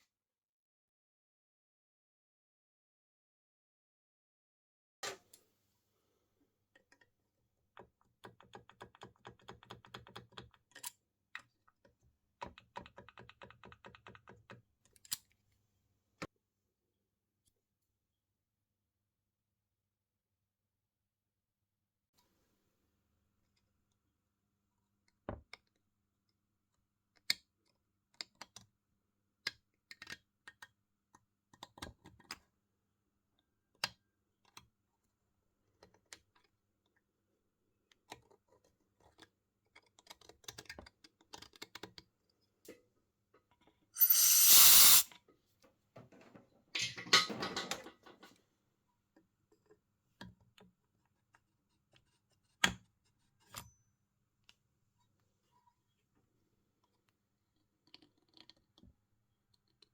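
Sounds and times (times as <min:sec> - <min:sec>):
loud hiss: 0:44.0 - 0:45.1.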